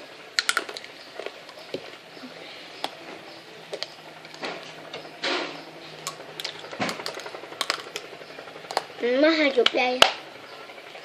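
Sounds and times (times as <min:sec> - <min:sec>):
crunching snack sticks: 0:00.4 - 0:01.6, 0:06.0 - 0:08.0.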